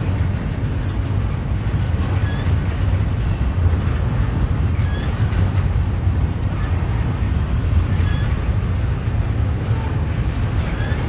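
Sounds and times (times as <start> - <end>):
freight train rumbling over rails: 0.0 - 11.0.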